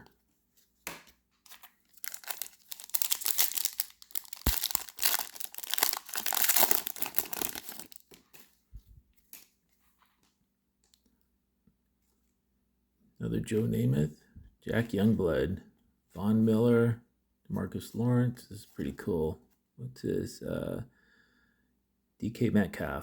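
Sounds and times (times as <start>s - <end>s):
wrapper tearing and crinkling: 1.5s - 8.2s.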